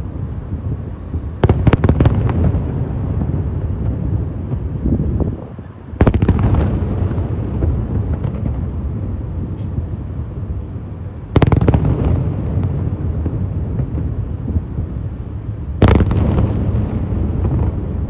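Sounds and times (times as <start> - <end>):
continuous low rumble: 0.0 - 18.0
sharp cracking bangs: 15.8 - 18.0.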